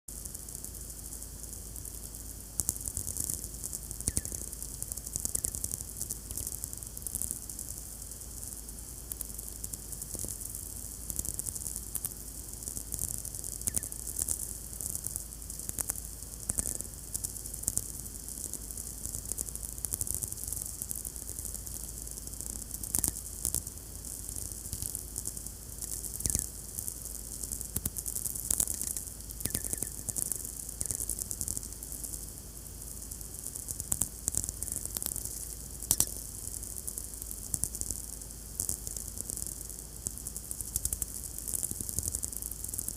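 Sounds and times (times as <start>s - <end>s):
steady high radio hiss: 0.1s - 42.9s
radio crackling and popping: 25.8s - 26.5s, 27.8s - 31.2s, 35.8s - 36.2s.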